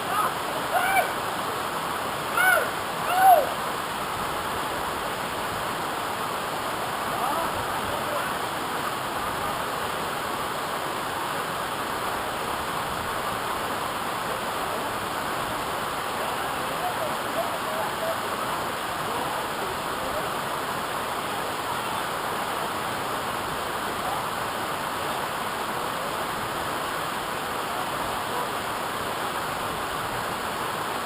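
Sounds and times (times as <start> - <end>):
waterfall rushing: 0.0 - 31.0
rising and falling calls: 2.3 - 3.6.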